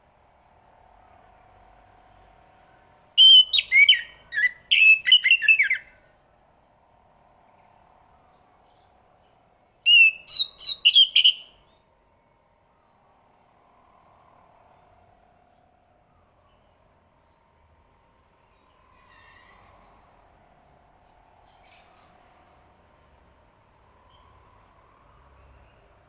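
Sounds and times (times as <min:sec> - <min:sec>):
faint steady hum: 0:00.0 - 0:26.0
thrush singing whistled notes: 0:03.2 - 0:06.0, 0:09.8 - 0:11.7.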